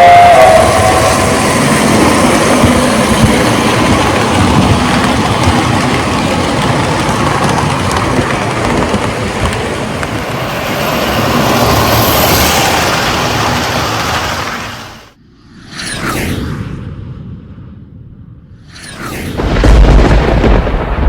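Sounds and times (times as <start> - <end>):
toy train rolling and clattering: 1.8 - 15.0.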